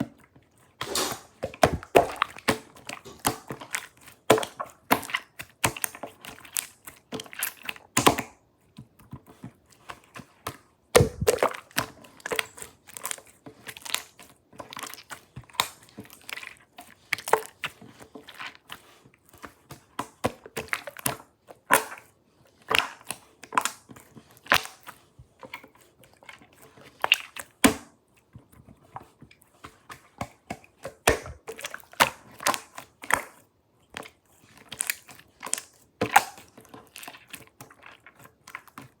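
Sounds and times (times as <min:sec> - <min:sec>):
slime squishing and popping: 0:00.8 - 0:08.4, 0:10.9 - 0:17.6, 0:30.2 - 0:33.4, 0:34.6 - 0:38.9.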